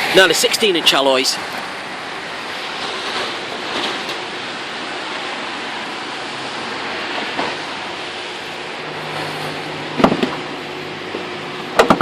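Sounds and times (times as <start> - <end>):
rain: 0.0 - 11.9
wind: 0.0 - 12.0
sharp knocks: 10.0 - 10.4, 11.8 - 12.0.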